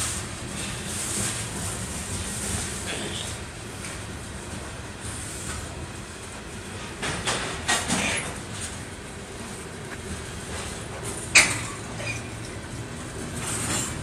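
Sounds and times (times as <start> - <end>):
train cars rumbling over rails: 0.0 - 14.0
metallic clanks and squeals: 11.3 - 12.6.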